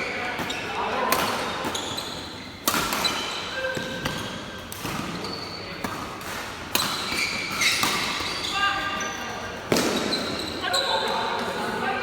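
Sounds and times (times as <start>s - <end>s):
shoe squeaks on court floor: 0.0s - 0.8s, 1.7s - 4.3s, 5.2s - 5.8s, 6.8s - 11.2s
racket striking shuttlecock: 2.6s - 8.4s.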